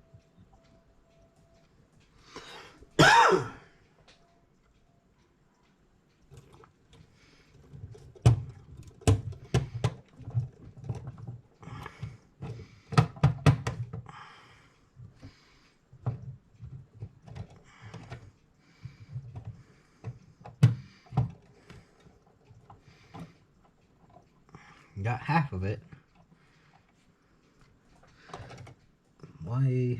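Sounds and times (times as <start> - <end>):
metal parts clicking and knocking: 6.1 - 14.1, 27.9 - 28.9
handling and rustling: 6.2 - 14.1.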